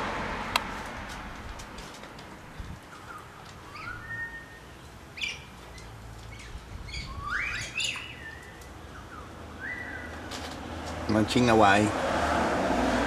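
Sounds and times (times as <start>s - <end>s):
birds chirping and screeching: 2.5s - 11.5s.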